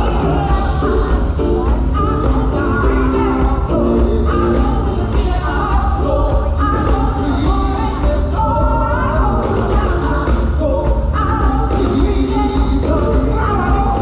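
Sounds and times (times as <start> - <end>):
choir singing: 0.0 - 7.5
band accompaniment: 0.0 - 14.0
heavy steady bass: 0.0 - 14.0.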